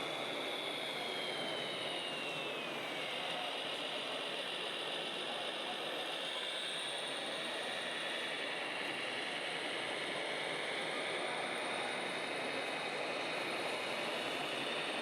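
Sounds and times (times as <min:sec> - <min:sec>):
electric motor whine: 0:00.0 - 0:15.0.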